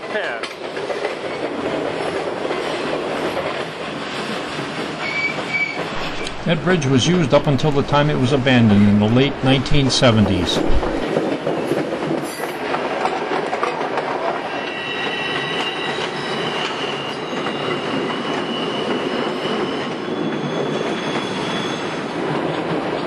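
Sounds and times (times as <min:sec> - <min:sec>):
train wheels rumbling on rail: 0:00.0 - 0:23.0
high wheel squeal: 0:14.6 - 0:22.1.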